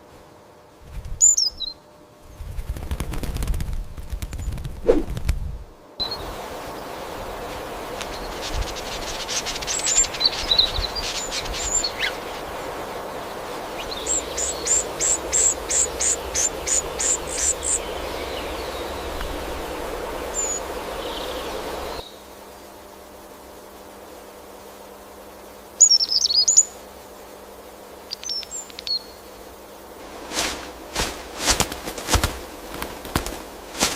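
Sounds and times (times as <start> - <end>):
forest background hiss: 0.0 - 33.9
birds chirping: 6.0 - 22.3.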